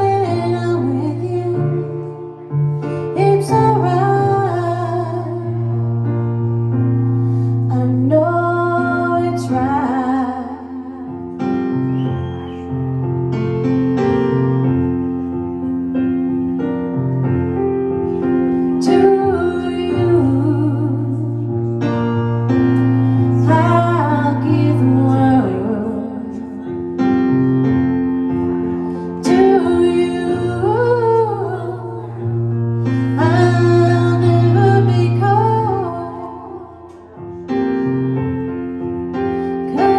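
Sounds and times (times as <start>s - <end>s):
woman singing: 0.0s - 5.8s, 7.7s - 11.3s, 18.7s - 21.7s, 23.2s - 26.6s, 29.2s - 37.1s, 39.5s - 39.9s
piano accompaniment: 0.0s - 39.9s.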